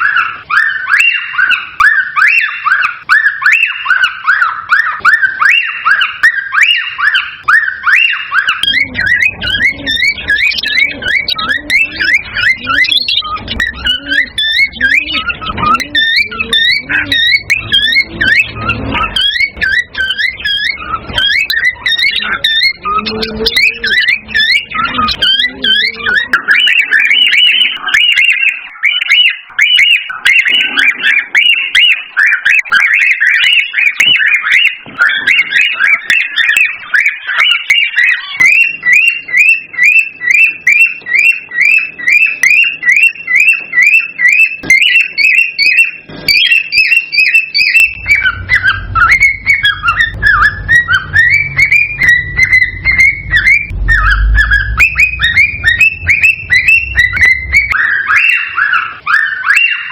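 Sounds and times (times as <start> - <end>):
cockatiel whistling and chirping: 0.0 - 59.9
low rumble: 47.9 - 57.9.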